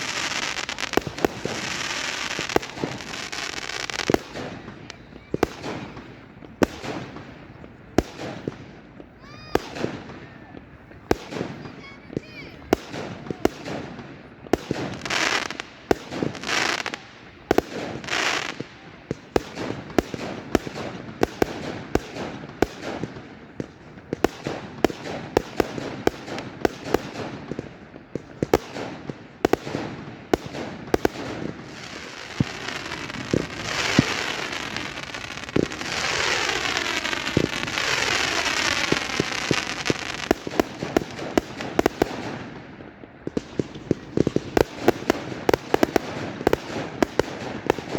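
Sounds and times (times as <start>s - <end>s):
fireworks hissing: 0.0s - 7.0s, 30.8s - 42.2s
fireworks bangs: 0.0s - 47.9s.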